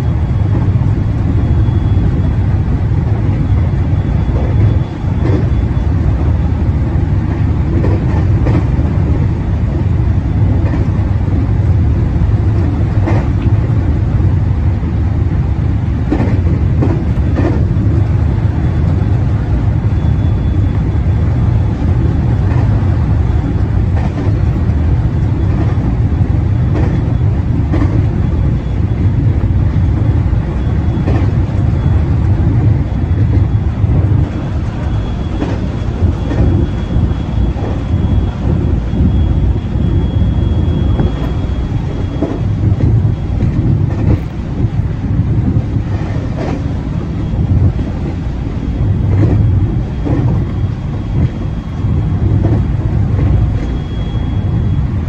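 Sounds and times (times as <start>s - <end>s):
train wheels rumbling on rail: 0.0s - 55.0s
clack over rail joint: 4.2s - 5.6s, 7.2s - 9.2s, 10.5s - 11.0s, 12.5s - 13.7s, 16.0s - 18.1s, 22.4s - 22.8s, 23.9s - 24.6s, 26.7s - 28.8s, 30.0s - 31.7s, 32.5s - 39.1s, 40.8s - 46.8s, 49.0s - 53.9s
faint high whine: 32.8s - 43.5s, 53.0s - 55.0s.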